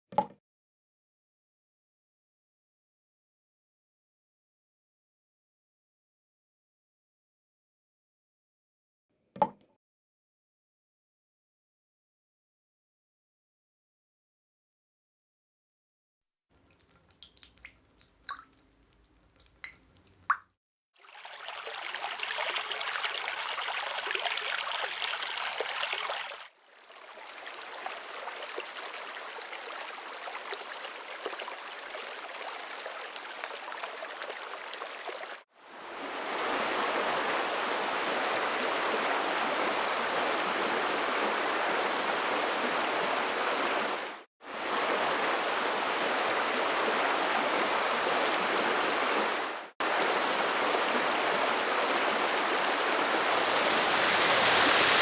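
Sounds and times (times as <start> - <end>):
rushing water: 21.0 - 55.0.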